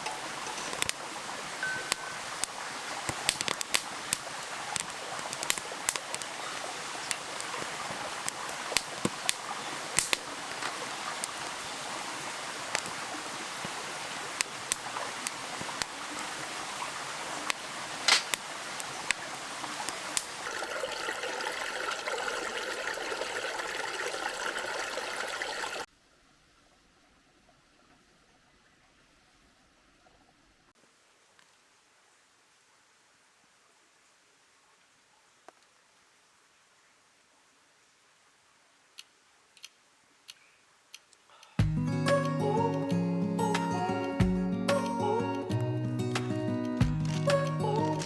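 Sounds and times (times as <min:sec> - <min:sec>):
sharp pops and crackles: 0:00.0 - 0:20.6, 0:39.0 - 0:48.0
stream rushing: 0:00.0 - 0:25.9.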